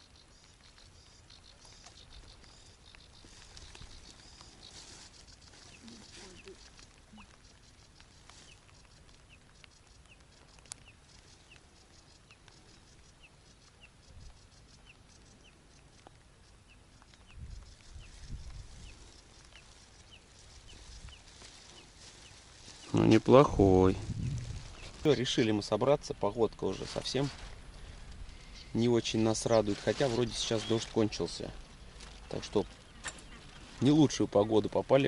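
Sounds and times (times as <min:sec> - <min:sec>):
wind rumble: 0:17.2 - 0:25.3.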